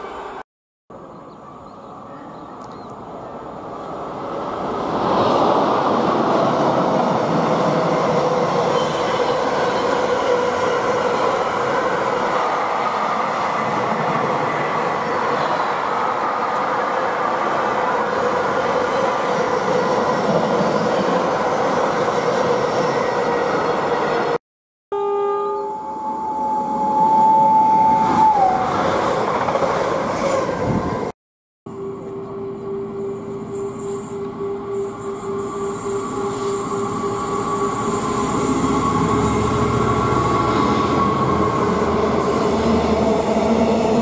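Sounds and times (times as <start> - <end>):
train wheels on rails: 28.0 - 30.6.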